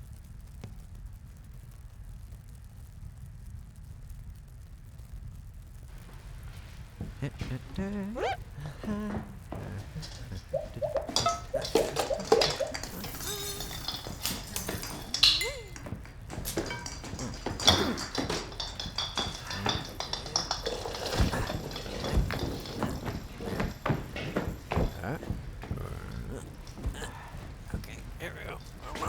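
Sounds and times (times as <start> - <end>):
hard objects clinking and knocking: 7.0 - 29.0.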